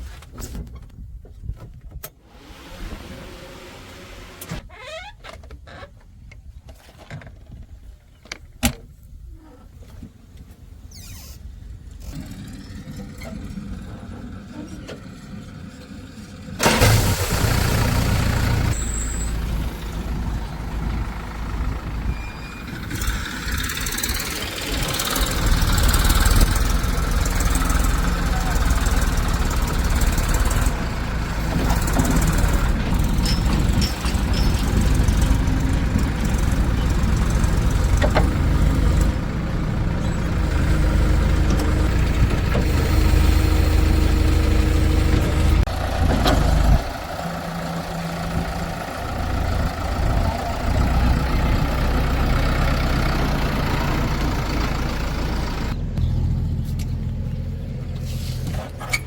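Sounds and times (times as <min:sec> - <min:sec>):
diesel engine running: 0:11.8 - 0:59.0
metal clanks: 0:31.5 - 0:37.0.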